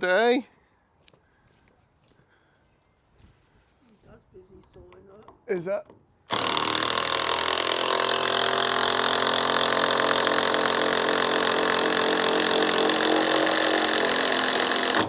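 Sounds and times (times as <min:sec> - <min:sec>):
cordless drill driving screw: 0:06.3 - 0:15.0.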